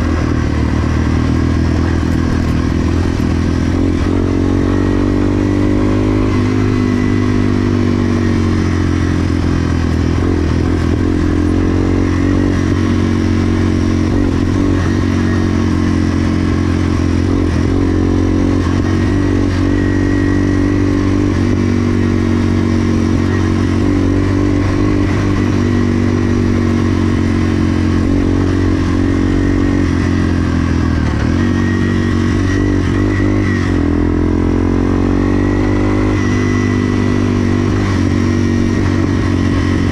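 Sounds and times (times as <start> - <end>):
motorcycle engine running hard: 0.0 - 39.9.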